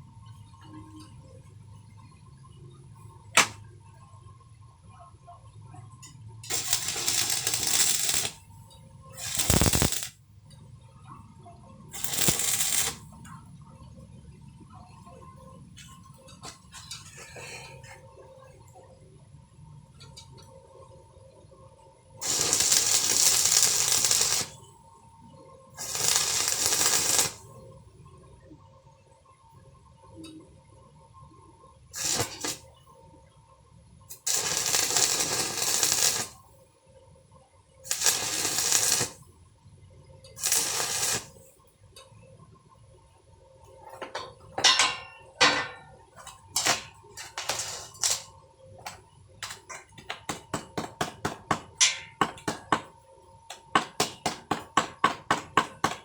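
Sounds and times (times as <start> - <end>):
welding arc crackling: 3.4 - 3.6, 6.4 - 8.6, 9.2 - 10.2, 11.9 - 13.2, 22.2 - 24.7, 25.8 - 27.6, 32.0 - 32.7, 34.1 - 36.5, 37.9 - 39.2, 40.4 - 41.5, 43.9 - 56.0.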